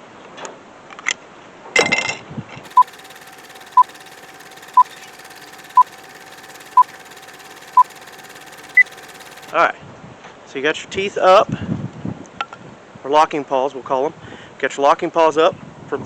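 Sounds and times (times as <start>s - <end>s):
short electronic beeps: 2.7s - 9.5s.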